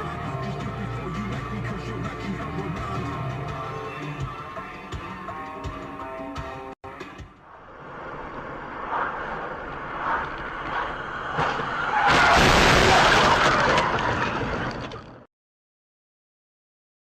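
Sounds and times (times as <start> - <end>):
vehicle road noise: 6.9 - 15.3
loud collision: 11.2 - 14.8.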